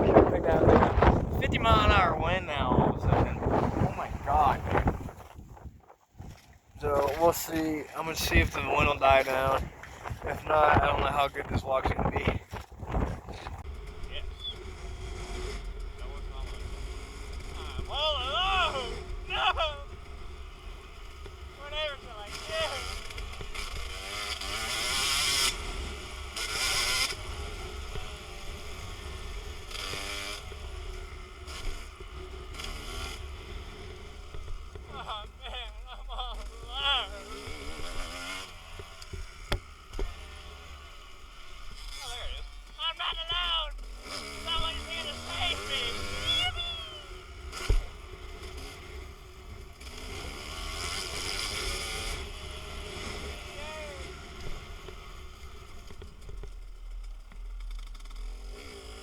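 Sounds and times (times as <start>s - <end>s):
wind buffeting microphone: 0.0s - 15.6s
dirt bike engine revving: 0.0s - 59.0s.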